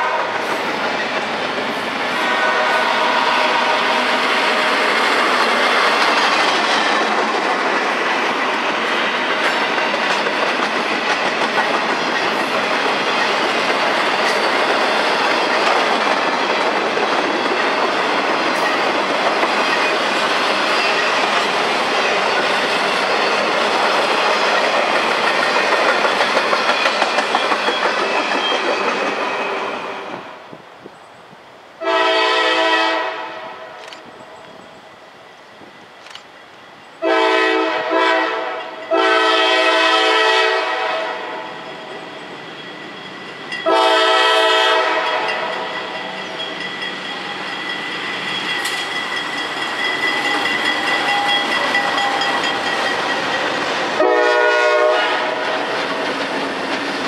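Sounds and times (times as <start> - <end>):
locomotive horn: 0.0 - 0.4, 2.2 - 4.5, 31.8 - 33.8, 37.0 - 41.5, 43.6 - 45.7, 54.0 - 55.6
freight train wheels rumbling: 0.0 - 57.0
train horn chord: 2.2 - 4.1, 31.8 - 33.8, 37.0 - 41.4, 43.6 - 45.7, 54.0 - 55.5
clickety-clack wheel rhythm: 9.4 - 20.0, 23.4 - 29.2.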